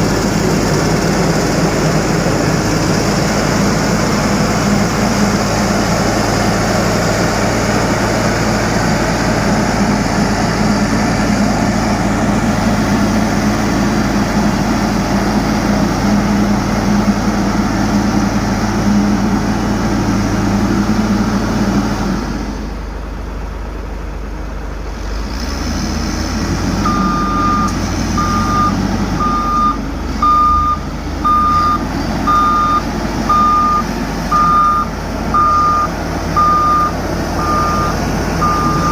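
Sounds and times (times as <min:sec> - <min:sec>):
diesel engine running: 0:00.0 - 0:38.9
reversing alarm beeping: 0:26.8 - 0:38.9.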